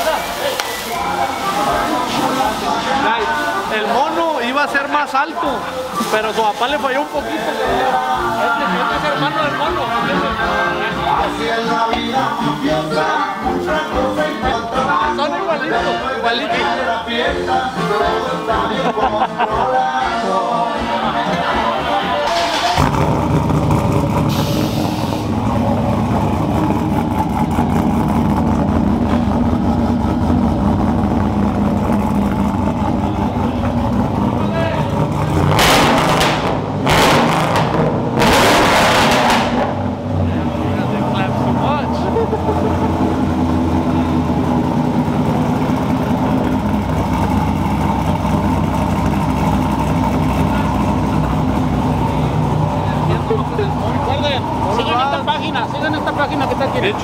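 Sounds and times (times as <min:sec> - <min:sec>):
car engine running: 0:21.9 - 0:57.0.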